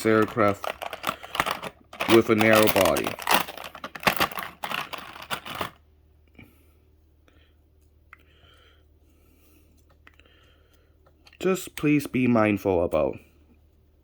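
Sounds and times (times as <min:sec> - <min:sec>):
plastic packaging crinkling: 0:00.0 - 0:05.8
faint room hum: 0:00.0 - 0:14.0.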